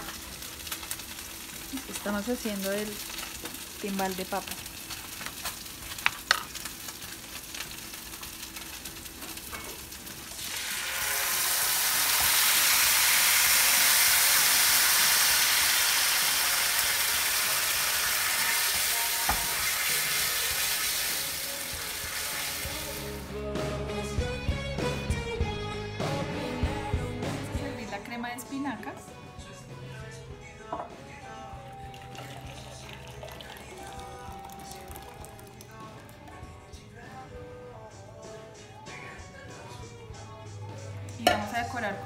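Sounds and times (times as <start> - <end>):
fish sizzling in hot oil: 0.0 - 23.3, 31.8 - 36.2.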